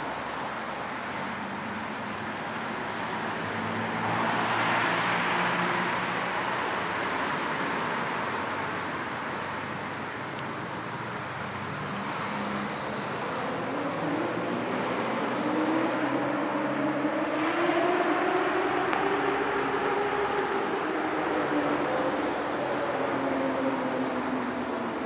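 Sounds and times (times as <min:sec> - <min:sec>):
passing traffic: 0:00.0 - 0:25.0
vehicle engine accelerating: 0:11.8 - 0:24.0.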